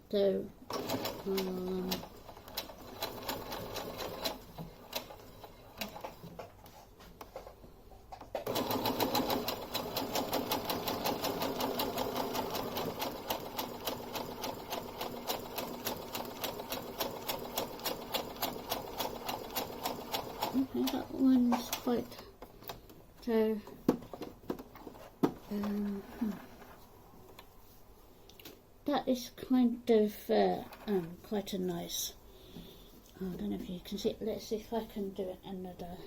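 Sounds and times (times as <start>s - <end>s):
sewing machine stitching: 0.7s - 6.3s, 8.4s - 22.1s.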